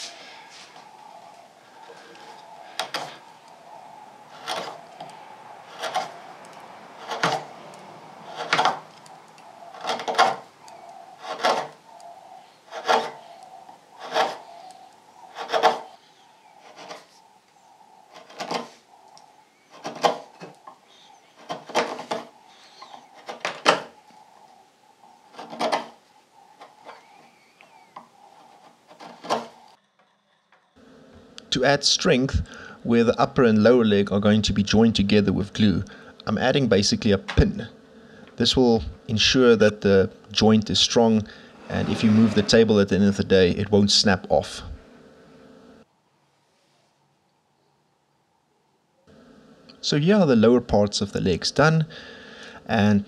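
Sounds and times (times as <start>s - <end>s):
faint steady hum: 0.0s - 53.0s
chisel scraping wood on lathe: 4.3s - 15.9s, 16.6s - 17.2s, 25.3s - 29.8s, 41.3s - 43.1s.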